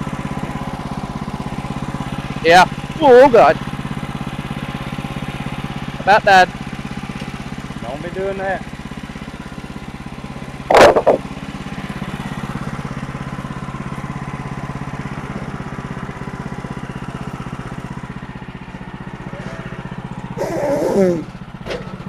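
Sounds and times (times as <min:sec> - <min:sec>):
sawmill engine running: 0:00.0 - 0:22.0
sharp loud knock: 0:10.7 - 0:11.2.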